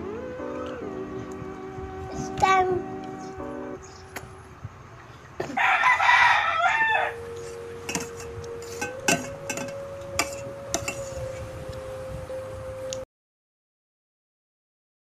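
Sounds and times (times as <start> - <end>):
steady hum: 0.0 - 13.0
rooster crowing: 5.4 - 11.4.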